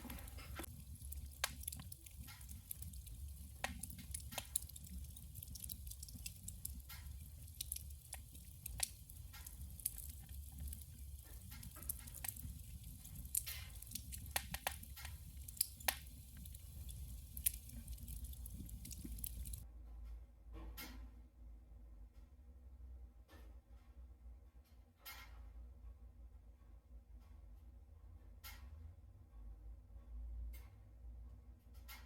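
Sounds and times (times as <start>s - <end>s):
wood fire crackling and popping: 0.0s - 19.6s
low rumble of fire: 0.0s - 19.7s.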